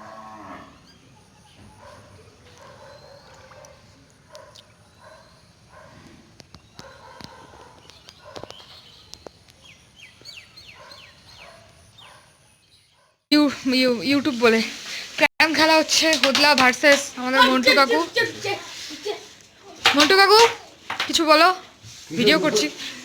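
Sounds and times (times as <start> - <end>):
birds calling: 0.0 - 13.1.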